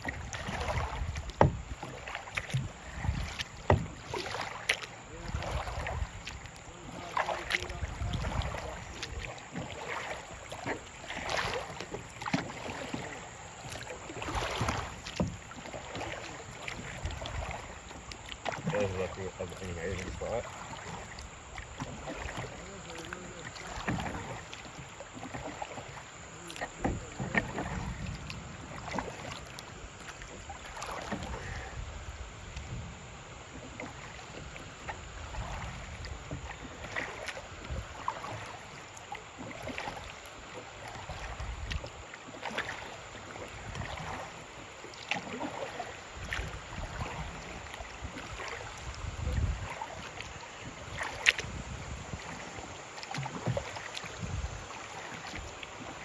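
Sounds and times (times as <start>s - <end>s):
wind rumbling on microphone: 0.0s - 1.8s, 5.0s - 9.4s, 31.0s - 33.4s, 46.2s - 54.7s
water splashing against kayak hull: 0.0s - 56.0s.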